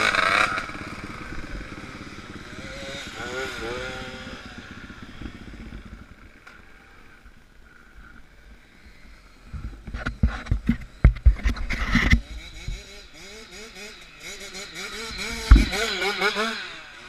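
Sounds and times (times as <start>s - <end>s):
motorcycle low rumble: 0.0s - 17.0s
loud knocks and thumps: 15.4s - 15.8s.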